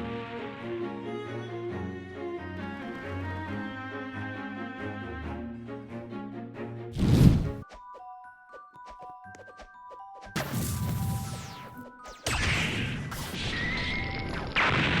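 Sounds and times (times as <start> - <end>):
noisy crash sound effects: 10.4 - 11.7, 12.3 - 15.0.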